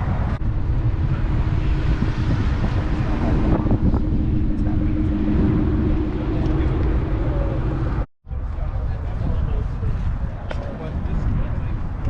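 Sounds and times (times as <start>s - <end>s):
wind buffeting microphone: 0.0s - 12.0s
steady hum: 0.4s - 8.1s.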